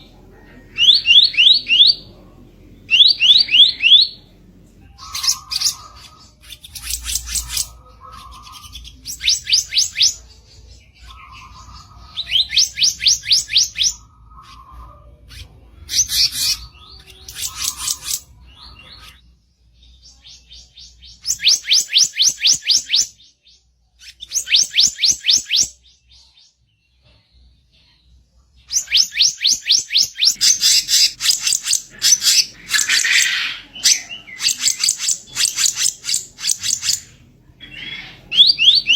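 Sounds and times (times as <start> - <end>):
bird harsh rattling calls: 5.0 - 10.2, 15.9 - 18.3, 28.7 - 37.2.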